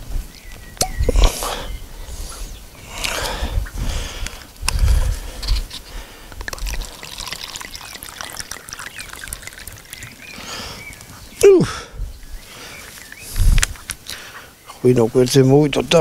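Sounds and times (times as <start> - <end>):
liquid pouring and gurgling: 6.4 - 10.4.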